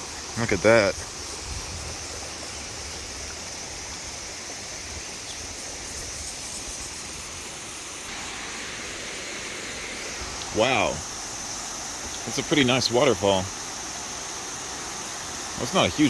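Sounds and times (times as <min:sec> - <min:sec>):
waterfall rushing: 0:07.6 - 0:16.0.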